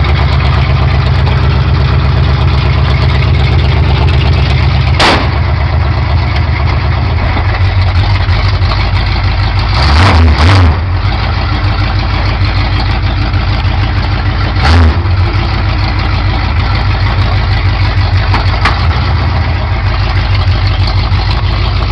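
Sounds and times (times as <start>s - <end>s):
vee eight engine idling: 0.0s - 10.0s, 10.6s - 21.9s
engine revving blips: 9.7s - 11.1s, 14.6s - 15.4s.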